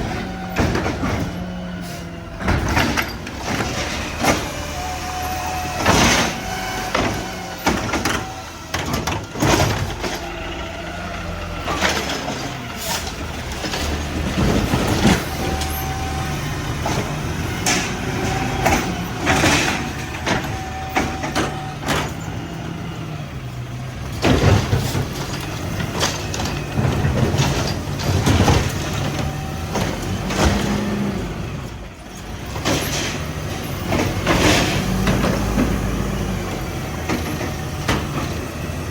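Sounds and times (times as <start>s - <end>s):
bangs and clanks: 0.0s - 1.8s, 2.4s - 4.8s, 5.7s - 10.4s, 16.6s - 22.6s, 24.0s - 31.0s
garbage truck engine: 0.0s - 38.9s
air brakes hissing: 1.7s - 2.2s.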